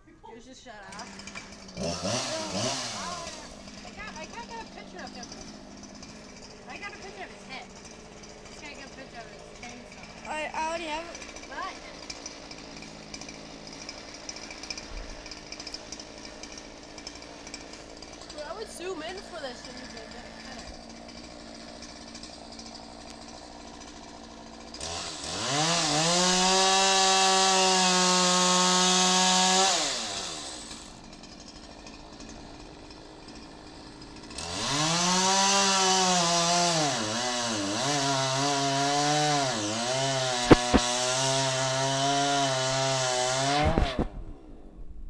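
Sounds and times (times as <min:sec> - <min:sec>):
chainsaw idling and revving: 0:00.4 - 0:44.8
chainsaw cutting wood: 0:00.7 - 0:45.0
sharp knocks: 0:40.4 - 0:41.1.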